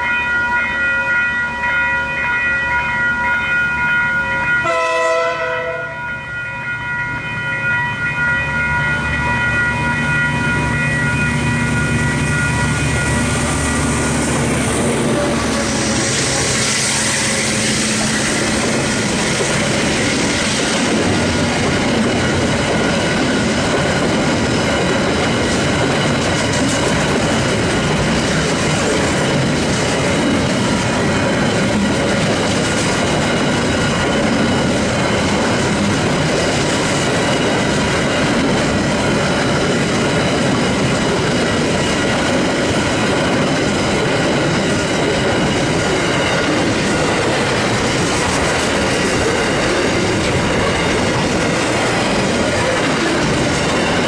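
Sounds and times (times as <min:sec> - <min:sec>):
freight train clattering past: 0:02.6 - 0:54.0.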